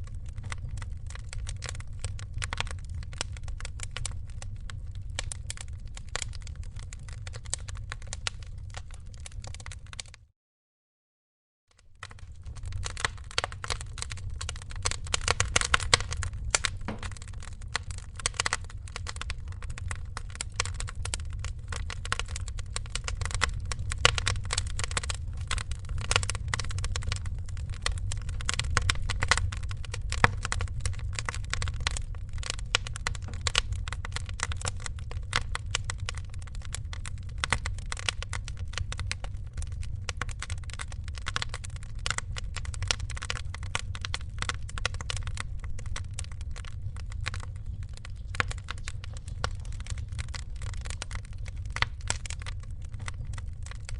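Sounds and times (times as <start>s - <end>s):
wood fire crackling: 0.0s - 10.2s, 11.8s - 53.9s
low steady fire rumble: 0.0s - 10.3s, 11.8s - 53.9s.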